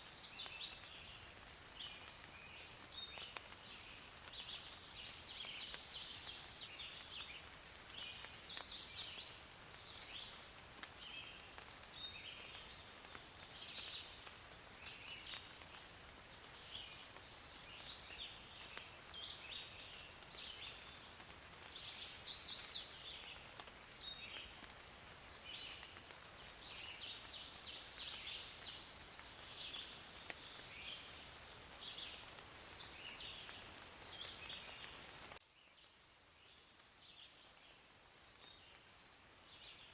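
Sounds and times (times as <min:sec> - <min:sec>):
faint steady hiss: 0:00.0 - 0:39.9
birds calling and singing: 0:00.3 - 0:10.4, 0:16.4 - 0:23.4, 0:26.5 - 0:35.4.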